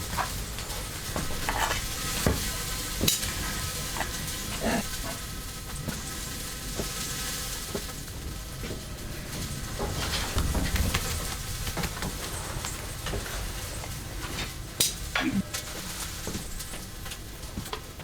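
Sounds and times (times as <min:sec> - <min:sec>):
utensil scraping and clinking: 0:00.0 - 0:06.0
food sizzling in a pan: 0:00.1 - 0:18.0.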